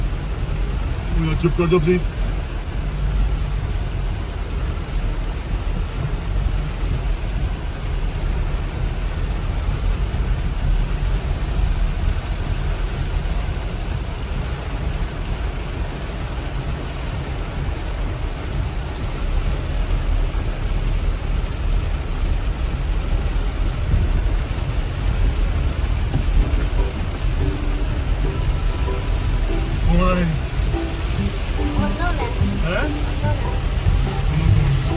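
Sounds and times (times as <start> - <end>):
rushing floodwater: 0.0 - 34.9
floodwater rushing: 22.8 - 34.9.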